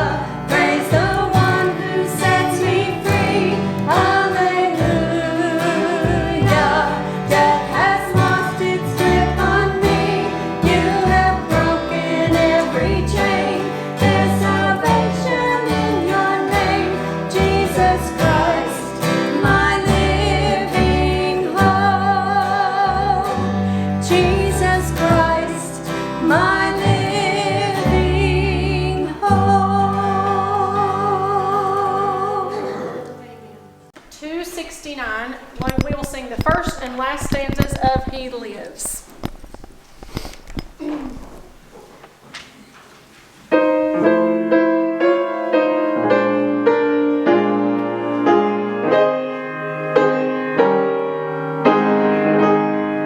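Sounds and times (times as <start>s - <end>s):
gospel singing with vibrato: 0.0s - 33.9s
instrumental accompaniment: 0.0s - 33.9s.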